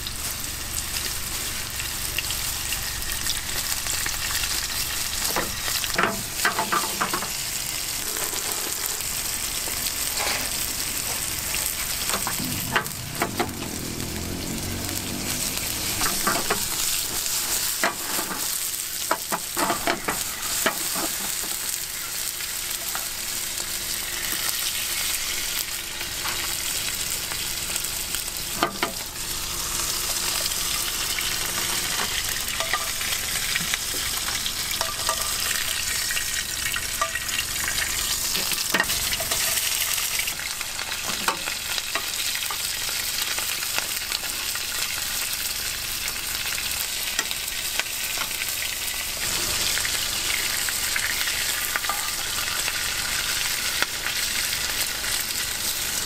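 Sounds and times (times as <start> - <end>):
food sizzling in a frying pan: 0.0 - 56.0
metal tongs scraping a pan: 7.9 - 10.7, 31.7 - 33.2, 34.7 - 35.8, 36.7 - 40.0.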